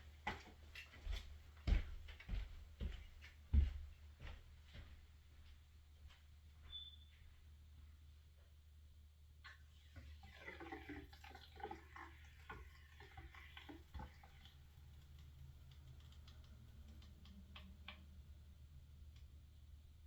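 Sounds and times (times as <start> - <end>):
faint clicks and taps: 13.5 - 18.3.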